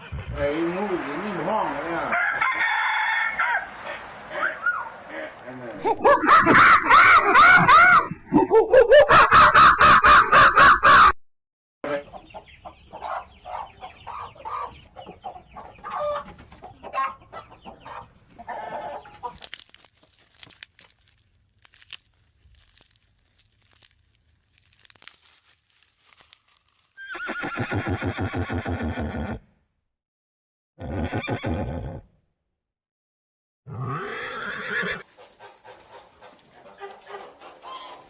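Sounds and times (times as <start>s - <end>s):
hens clucking: 11.9s - 19.5s, 34.9s - 38.0s
horse whinnying: 27.0s - 29.5s, 30.8s - 32.1s, 33.7s - 35.1s.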